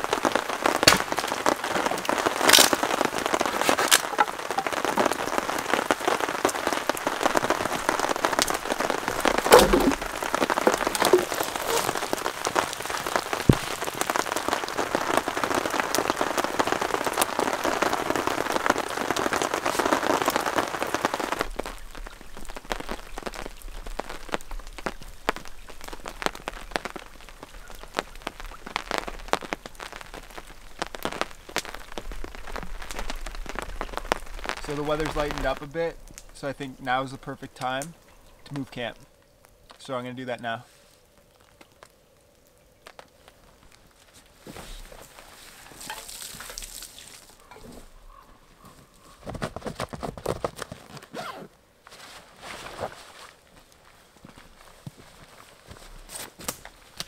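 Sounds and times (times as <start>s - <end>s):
heavy rain: 0.0s - 49.1s, 52.8s - 57.0s
raindrops tapping on tarp: 0.0s - 57.0s
sharp knocks: 9.5s - 11.8s.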